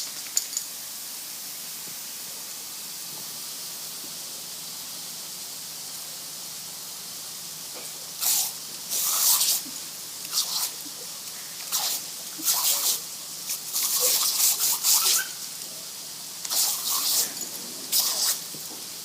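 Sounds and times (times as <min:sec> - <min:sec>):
garden sprinkler spraying water: 0:00.0 - 0:19.0
steady hiss: 0:00.0 - 0:19.0.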